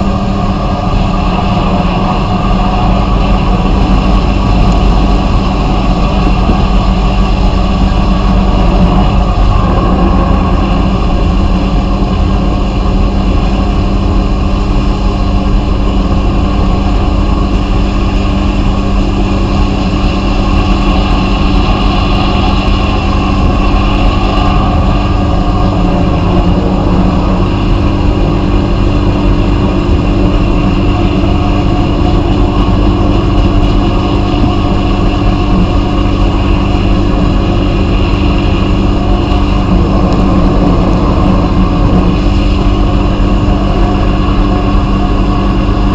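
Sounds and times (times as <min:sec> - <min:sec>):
machine hum: 0:00.0 - 0:45.9
blast hissing: 0:17.4 - 0:45.4.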